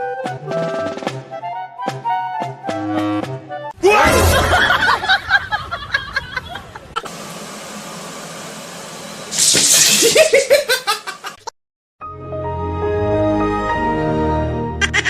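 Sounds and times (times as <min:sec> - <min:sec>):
people laughing: 0:04.0 - 0:07.0, 0:10.0 - 0:11.4.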